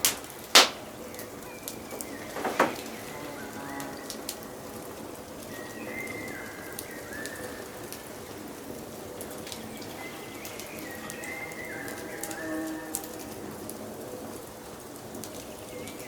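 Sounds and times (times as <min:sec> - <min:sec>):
wood fire crackling: 0:00.0 - 0:16.0
bird singing whistled phrases: 0:05.5 - 0:07.8, 0:09.7 - 0:13.0.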